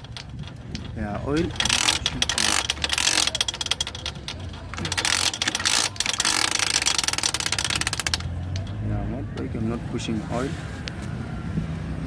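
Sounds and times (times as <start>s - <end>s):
metallic ratcheting clicks: 0.0s - 8.9s.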